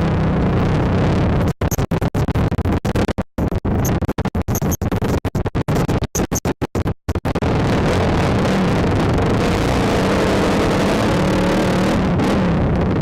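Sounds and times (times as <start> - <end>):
atv engine and riding noise: 0.0 - 1.8, 7.5 - 13.0.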